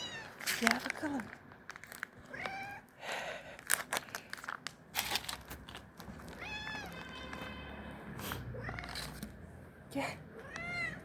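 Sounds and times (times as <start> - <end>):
cat meowing: 0.0 - 0.4, 2.2 - 2.9, 6.4 - 7.9, 8.5 - 9.2, 10.4 - 11.0
clicks and rustles: 3.6 - 7.5.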